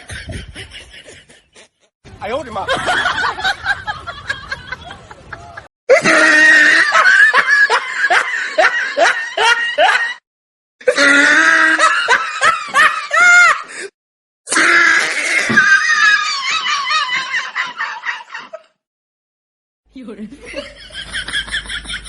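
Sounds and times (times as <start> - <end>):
person cackling laughter: 0.0 - 1.9.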